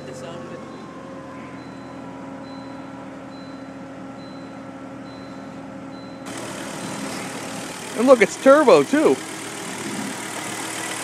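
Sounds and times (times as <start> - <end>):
car engine idling: 0.0 - 11.0
faint high beep: 0.6 - 7.2.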